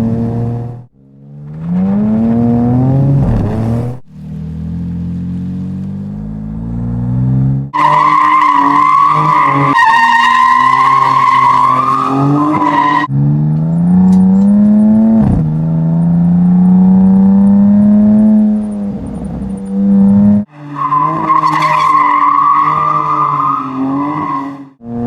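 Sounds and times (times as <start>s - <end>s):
car engine accelerating: 0.0s - 25.0s
car tyres squealing: 7.8s - 13.1s, 18.2s - 24.8s.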